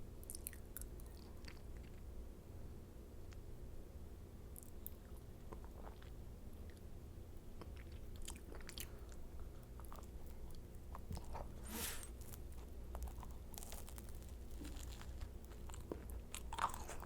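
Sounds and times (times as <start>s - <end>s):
chewing and biting crisp shells: 7.6s - 17.0s.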